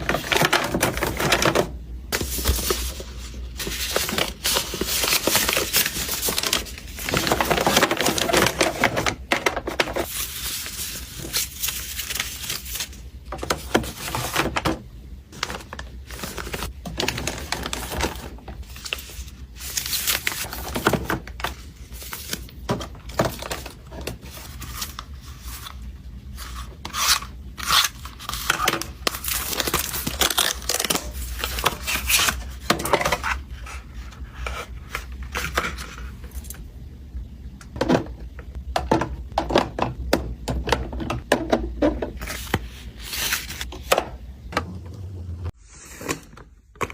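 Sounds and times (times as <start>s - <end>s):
packaging crinkling and tearing: 2.2s - 13.0s, 15.4s - 25.8s, 26.4s - 33.4s.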